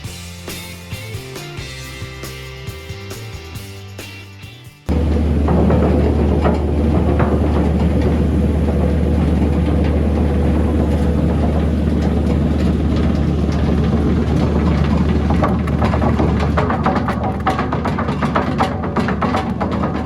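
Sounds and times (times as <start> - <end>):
wood chipper humming: 4.9 - 20.0.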